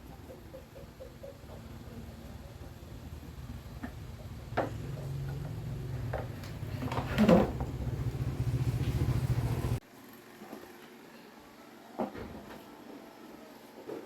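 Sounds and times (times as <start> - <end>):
electric fan motor hum: 1.6 - 13.9.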